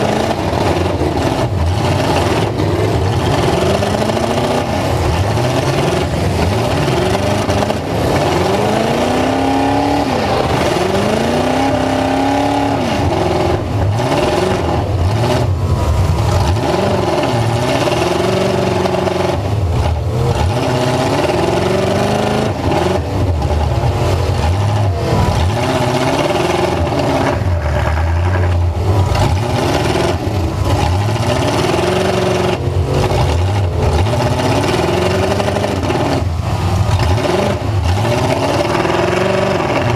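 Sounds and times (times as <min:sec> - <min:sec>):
pickup truck engine revving: 0:00.0 - 0:39.9.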